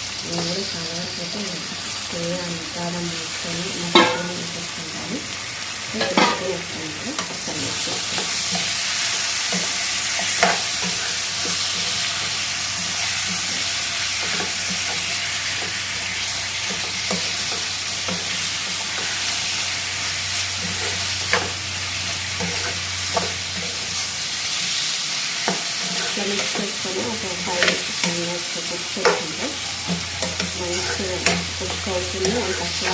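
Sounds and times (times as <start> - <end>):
chicken sizzling in oil: 0.0 - 32.9
spoon scraping and knocking pan: 3.9 - 4.4, 6.0 - 19.8, 20.5 - 24.0, 24.8 - 32.9.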